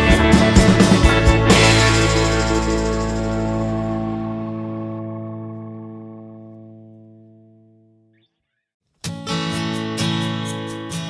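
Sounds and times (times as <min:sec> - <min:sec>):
held music chord: 0:00.0 - 0:07.4
strummed guitar with steady rhythm: 0:00.0 - 0:07.9, 0:09.0 - 0:11.0.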